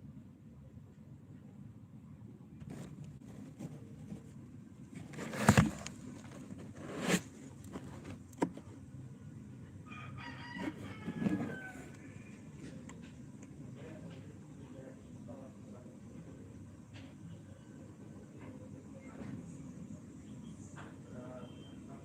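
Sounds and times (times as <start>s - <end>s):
rooster crowing: 9.8s - 12.4s.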